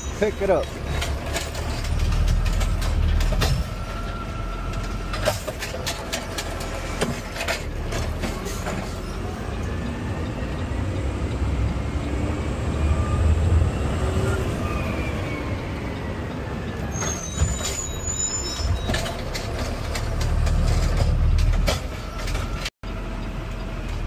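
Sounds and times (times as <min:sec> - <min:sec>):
trash cart knocking and clattering: 0:00.4 - 0:04.1, 0:04.8 - 0:09.0, 0:18.8 - 0:22.6
diesel truck engine revving: 0:07.6 - 0:16.8.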